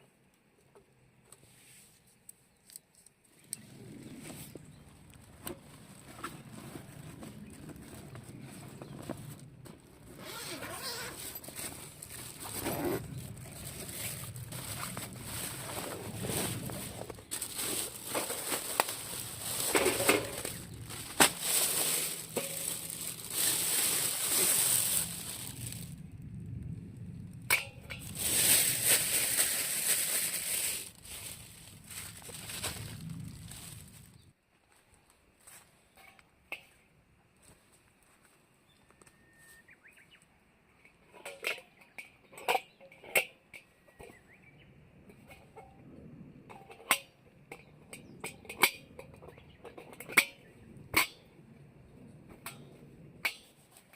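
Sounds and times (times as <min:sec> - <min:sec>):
dry twigs crunching and snapping: 0:11.5 - 0:26.0, 0:27.4 - 0:34.3.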